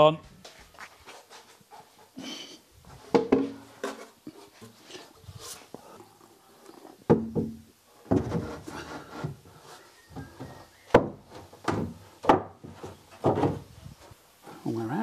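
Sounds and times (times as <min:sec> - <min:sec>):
wood scraping and rubbing: 0:00.6 - 0:14.2
sharp wooden knocks: 0:03.1 - 0:03.6, 0:07.1 - 0:08.6, 0:10.2 - 0:13.7.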